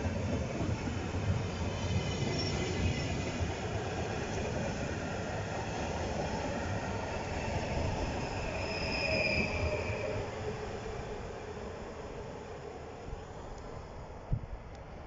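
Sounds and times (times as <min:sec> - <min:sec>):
train wheels rumbling on rail: 0:00.0 - 0:14.5
high wheel squeal: 0:08.3 - 0:10.2.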